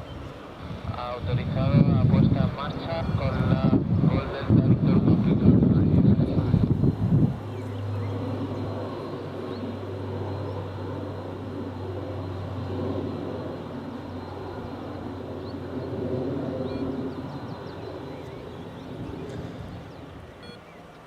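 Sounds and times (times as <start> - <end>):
aircraft engine hum: 0.0 - 21.0.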